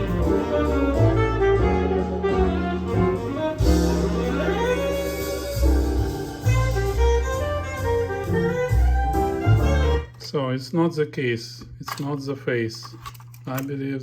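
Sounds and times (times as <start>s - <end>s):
jazz saxophone through speakers: 0.0s - 10.2s.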